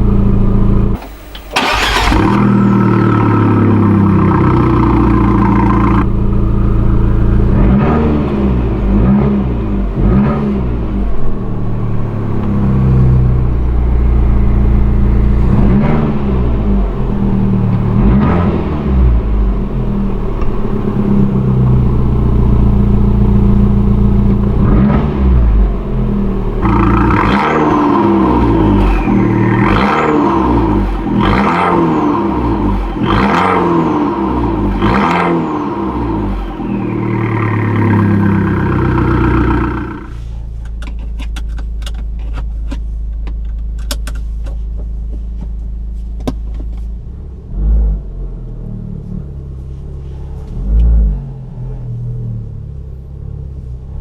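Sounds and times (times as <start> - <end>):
car engine revving: 0.0 - 40.3.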